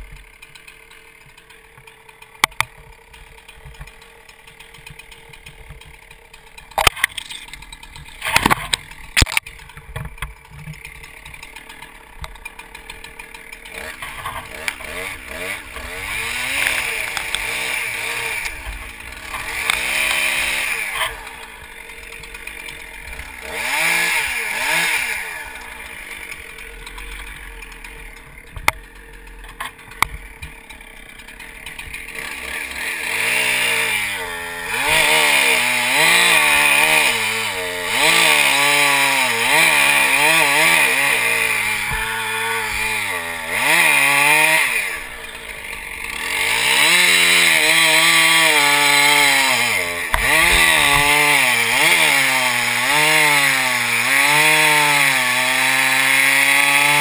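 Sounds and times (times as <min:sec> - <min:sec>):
chainsaw revving and idling: 0:00.0 - 0:57.0
sharp clicks: 0:06.6 - 0:12.5, 0:16.5 - 0:17.5.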